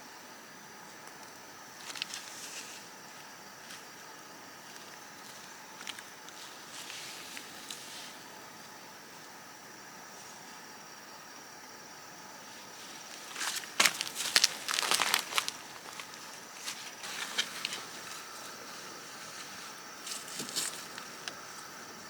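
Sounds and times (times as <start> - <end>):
crinkling handling noises: 1.8 - 2.9, 12.8 - 21.4.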